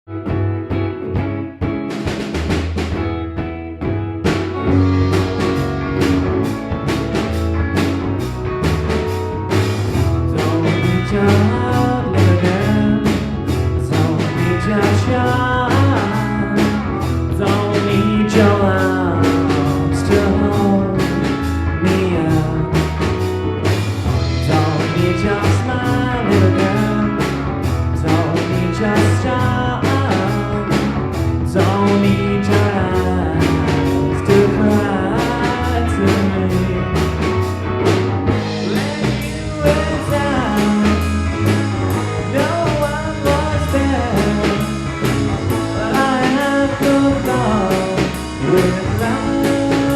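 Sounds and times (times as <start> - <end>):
live band playing: 0.1 - 49.9
person singing: 10.3 - 23.2, 24.3 - 37.3, 38.3 - 49.9.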